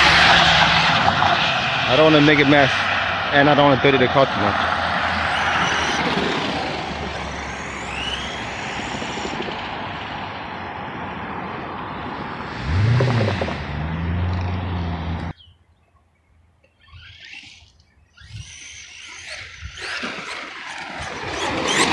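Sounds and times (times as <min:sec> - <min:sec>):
tyres on dirt: 0:00.0 - 0:15.4, 0:16.5 - 0:21.9
low hum: 0:03.0 - 0:15.3
rc truck motor whining: 0:03.4 - 0:11.0, 0:12.2 - 0:15.3, 0:16.7 - 0:21.9.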